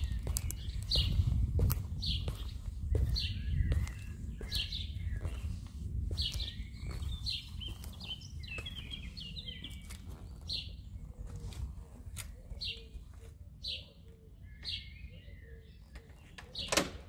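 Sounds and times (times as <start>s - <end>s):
steady low rumble: 0.0s - 13.1s
small birds chirping: 0.0s - 17.0s.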